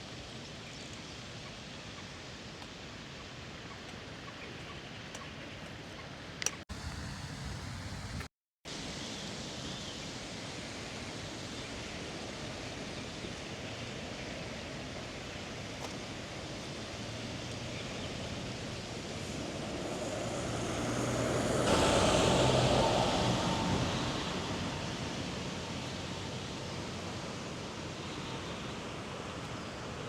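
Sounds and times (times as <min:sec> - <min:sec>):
city street ambience hum: 0:01.4 - 0:30.0
vehicle approaching: 0:16.9 - 0:30.0.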